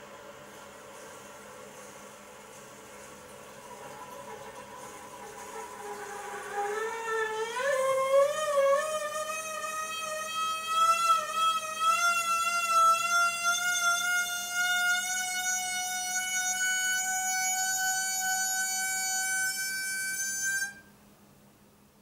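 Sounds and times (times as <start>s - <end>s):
horn-like whine in water pipe: 0.0s - 21.0s
toilet refilling: 2.6s - 7.6s.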